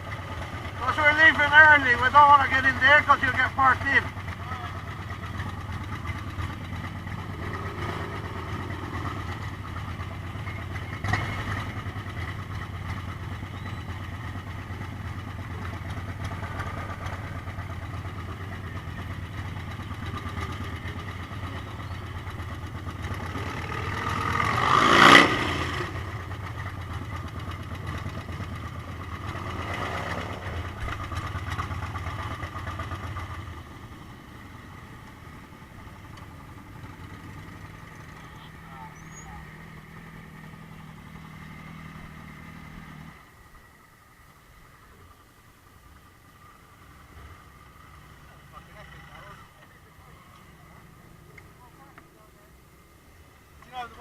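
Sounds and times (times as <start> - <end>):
motorcycle engine idling: 0.0 - 24.9, 25.6 - 54.0
motorcycle passing close by: 5.2 - 14.4, 15.1 - 43.3.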